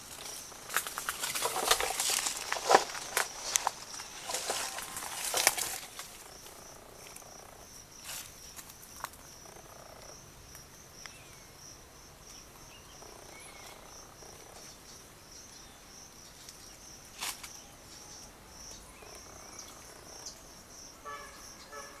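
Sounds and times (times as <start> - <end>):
faint clicks and rustles: 0.0 - 7.3
insects chirring: 0.0 - 22.0.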